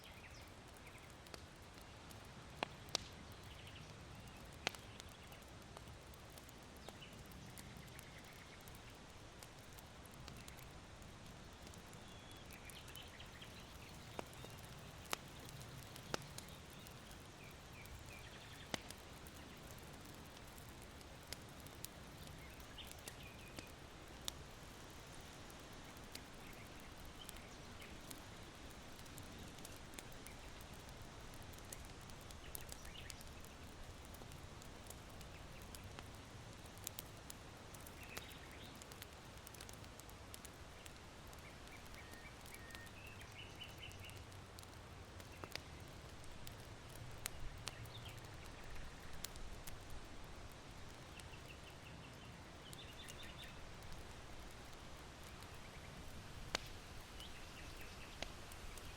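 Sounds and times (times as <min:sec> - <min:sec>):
small birds chirping: 0:00.0 - 0:05.6, 0:06.3 - 0:37.2, 0:37.8 - 0:49.8, 0:50.4 - 0:58.9
embers crackling and popping: 0:00.0 - 0:58.9
wind rustling bamboo: 0:40.0 - 0:58.9.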